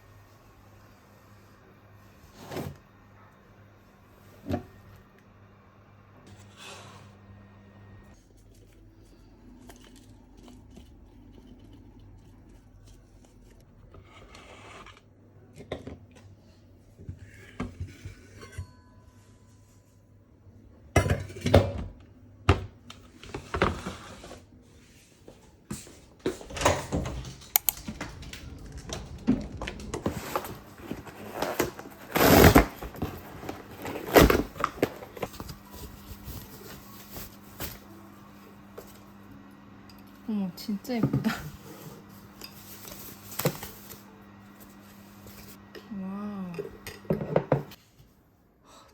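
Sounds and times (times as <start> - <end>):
dishes clinking and knocking: 46.9 - 47.7.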